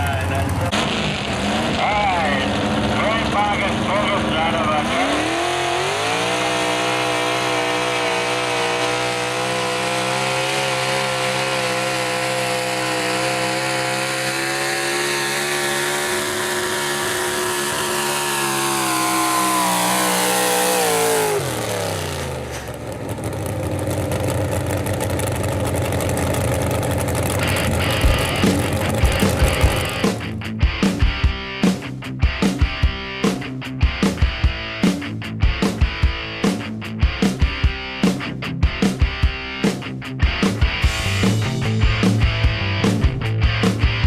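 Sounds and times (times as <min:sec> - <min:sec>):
truck engine revving under load: 0:00.0 - 0:31.2.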